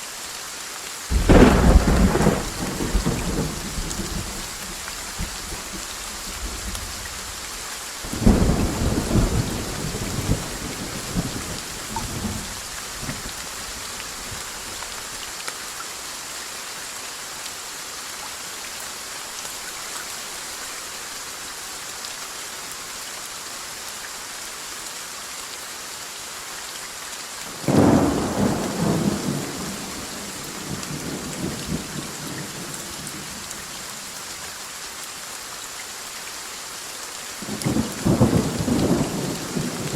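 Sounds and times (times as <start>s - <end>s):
rain hissing: 0.0s - 15.6s, 27.3s - 36.1s, 36.7s - 39.9s
thunder rumbling: 1.1s - 6.9s, 8.1s - 12.6s, 27.7s - 32.3s.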